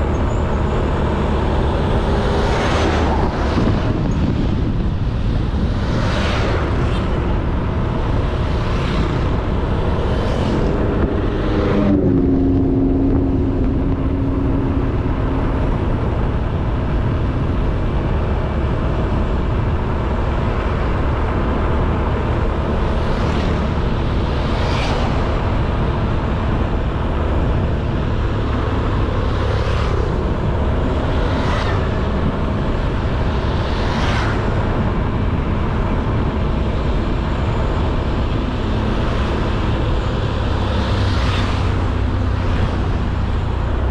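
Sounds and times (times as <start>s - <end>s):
wind and road noise: 0.0s - 43.9s.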